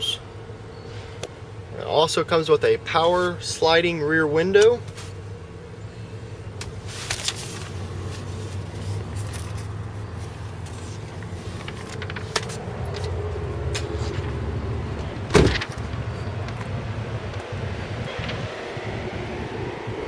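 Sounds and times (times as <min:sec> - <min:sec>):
truck engine humming: 0:00.0 - 0:20.0.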